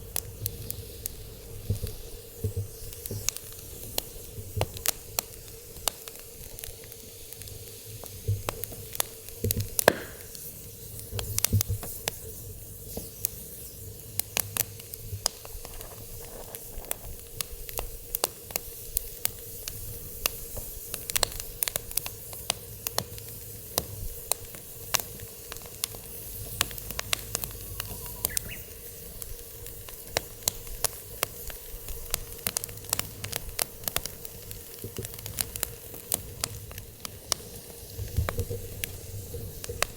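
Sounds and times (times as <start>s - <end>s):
fire hissing: 0.0s - 39.9s
firewood crackling: 0.0s - 39.9s
faint steady hum: 21.5s - 39.9s.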